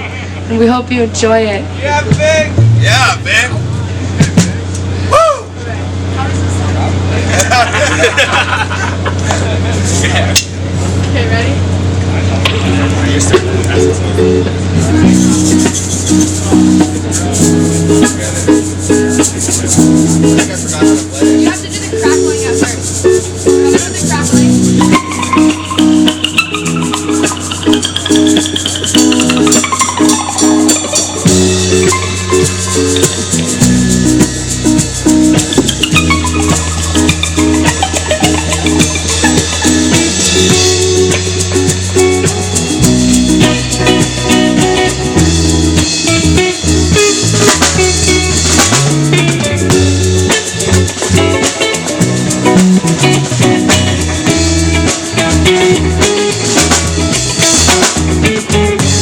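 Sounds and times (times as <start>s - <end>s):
pitched chords: 0.0s - 5.1s, 9.8s - 59.0s
guitar: 0.0s - 59.0s
low bass line: 0.0s - 59.0s
drum kit: 1.2s - 6.2s, 7.3s - 59.0s
high sliding tone: 13.8s - 58.0s
shaker rattle: 15.0s - 58.8s.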